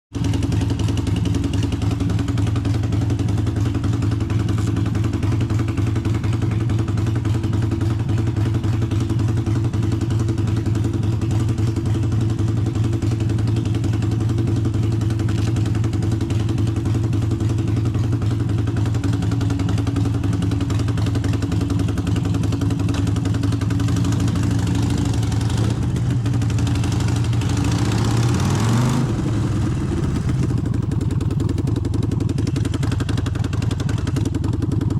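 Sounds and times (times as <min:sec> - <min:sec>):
motorcycle engine idling and revving: 0:00.1 - 0:34.9.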